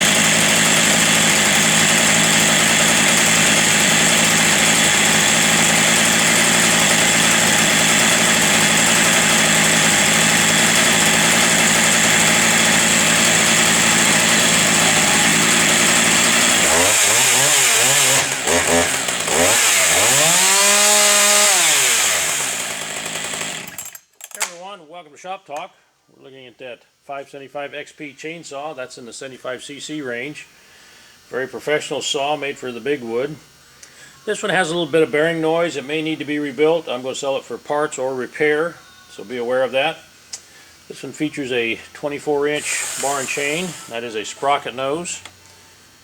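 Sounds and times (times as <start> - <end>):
chainsaw running and revving: 0.0 - 24.0, 42.4 - 45.1.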